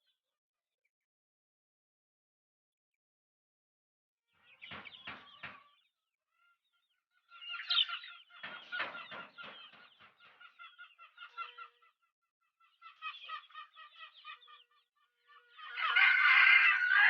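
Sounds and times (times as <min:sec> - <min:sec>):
chickens clucking: 0:04.4 - 0:17.0.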